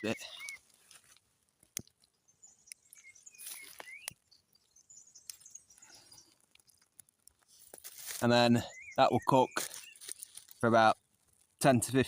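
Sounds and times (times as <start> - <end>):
faint bird chirps: 0.0 - 0.7, 2.0 - 6.8, 8.2 - 11.0
small sharp clicks and taps: 0.4 - 4.2, 5.2 - 7.9.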